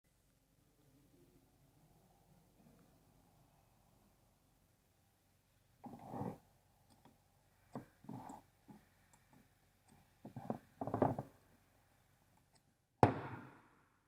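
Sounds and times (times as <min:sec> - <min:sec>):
sharp loud knock: 0:13.0 - 0:13.6.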